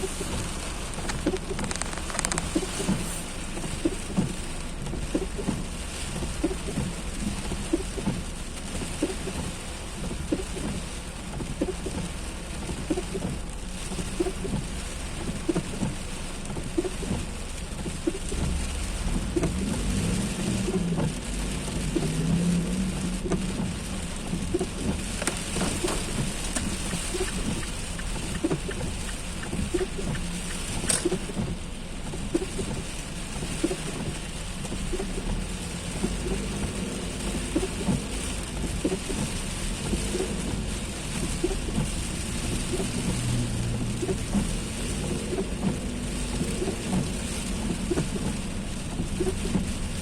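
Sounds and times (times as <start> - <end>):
heavy rain pouring: 0.0 - 50.0
raindrops spattering and dripping: 0.0 - 50.0
low rumble: 16.7 - 50.0.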